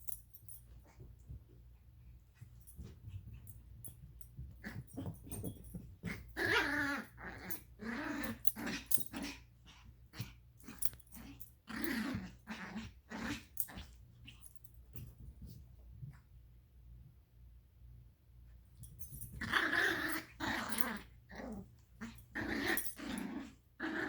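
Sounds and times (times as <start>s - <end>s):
dogs growling: 6.0s - 13.9s, 19.4s - 24.0s.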